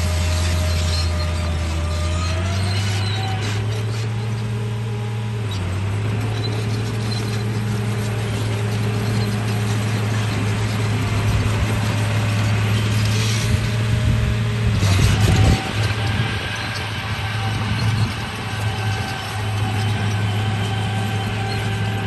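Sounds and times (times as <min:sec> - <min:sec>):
gears and tracks rattling: 0:00.0 - 0:22.0
toy bulldozer motors humming: 0:00.0 - 0:22.0.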